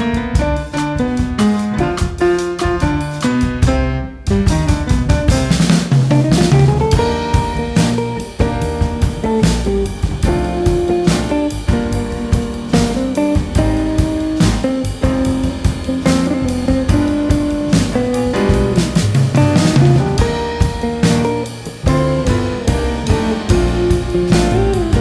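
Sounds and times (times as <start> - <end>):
drum kit beat: 0.0 - 25.0
guitar: 0.0 - 25.0.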